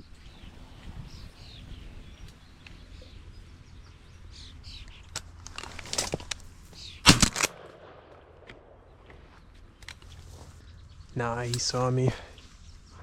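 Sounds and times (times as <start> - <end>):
small birds chirping: 0.0 - 7.1, 8.7 - 13.0.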